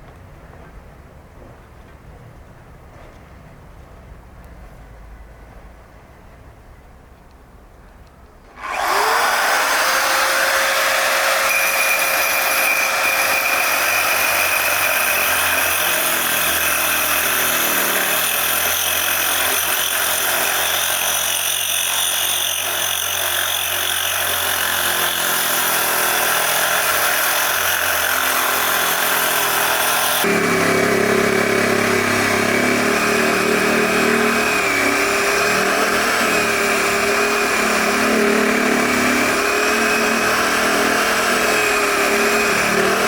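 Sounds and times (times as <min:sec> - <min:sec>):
grinder grinding stone: 0:08.6 - 0:43.0.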